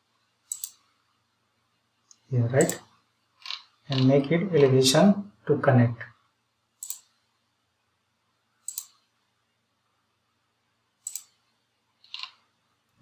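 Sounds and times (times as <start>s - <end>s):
computer mouse clicks: 0.5s - 0.9s, 2.1s - 2.8s, 6.8s - 7.2s, 8.6s - 9.1s, 11.0s - 11.4s.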